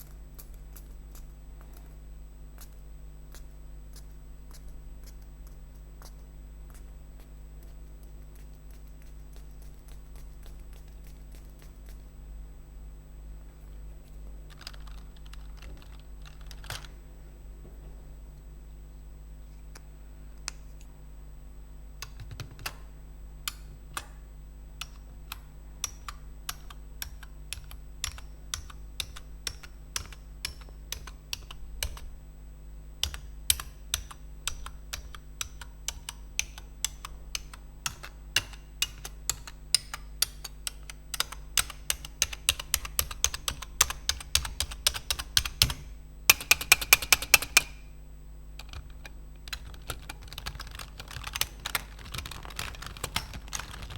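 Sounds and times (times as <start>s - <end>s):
keyboard keys clicking: 14.5s - 16.9s, 22.0s - 22.9s, 24.8s - 32.1s, 33.0s - 47.8s, 48.6s - 53.9s.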